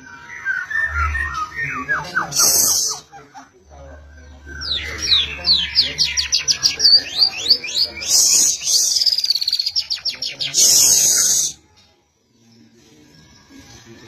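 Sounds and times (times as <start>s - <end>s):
songbird high sweeping notes: 0.0s - 3.2s
bird harsh rasping bursts: 5.0s - 11.6s.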